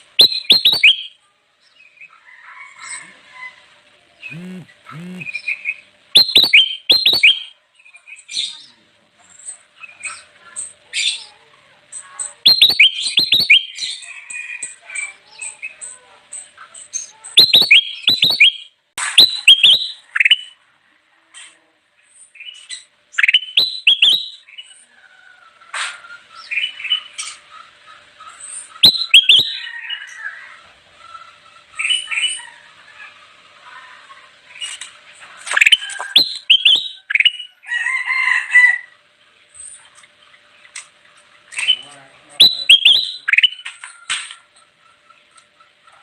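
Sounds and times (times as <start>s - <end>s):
bulbul whistling song: 0.1s - 1.2s, 4.2s - 8.7s, 12.4s - 14.8s, 17.0s - 20.6s, 22.4s - 24.8s, 28.6s - 30.2s, 35.5s - 37.6s, 41.6s - 43.7s
faint high chirps: 0.1s - 3.1s, 4.2s - 8.8s, 11.1s - 14.8s, 15.4s - 20.6s, 28.6s - 30.2s, 35.4s - 37.6s.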